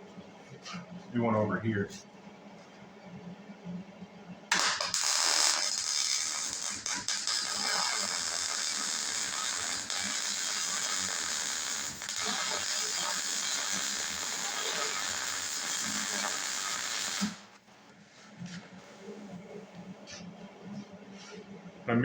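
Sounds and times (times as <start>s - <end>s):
welding arc crackling hiss: 4.5s - 17.6s.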